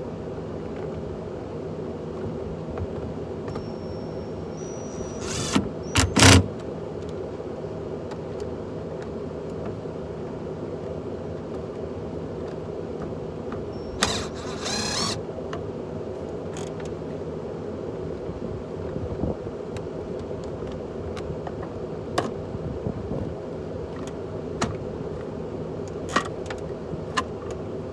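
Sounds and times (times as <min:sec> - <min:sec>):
power window clunks and whirring: 0:04.9 - 0:06.5, 0:14.0 - 0:15.2.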